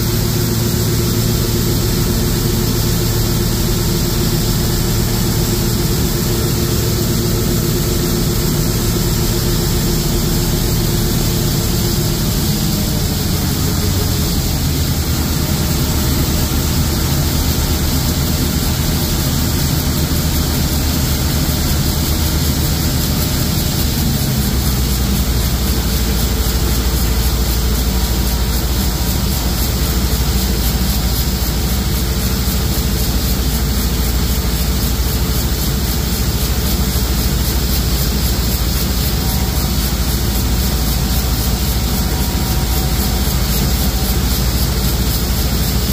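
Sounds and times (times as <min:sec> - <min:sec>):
combine harvester engine drone: 0:00.0 - 0:45.9.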